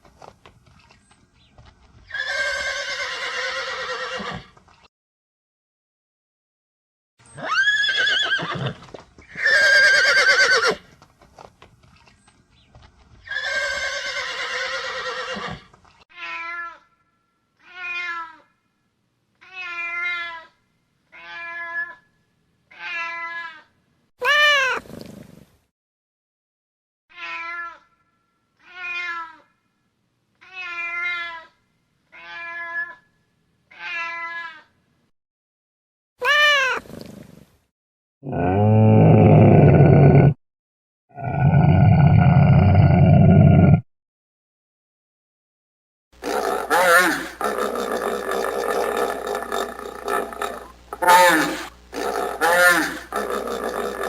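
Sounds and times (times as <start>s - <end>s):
long rough animal calls: 46.2s - 54.0s.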